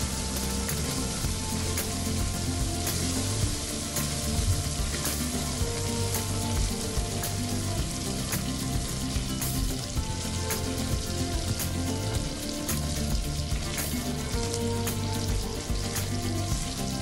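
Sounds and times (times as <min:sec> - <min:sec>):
soft background music: 0:00.0 - 0:17.0
syrup sizzling and bubbling in pot: 0:00.0 - 0:17.0.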